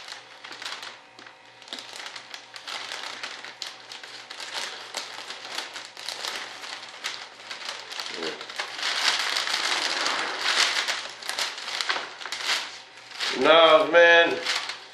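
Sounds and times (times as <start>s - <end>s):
plastic crinkling and rustling: 0.0s - 14.9s.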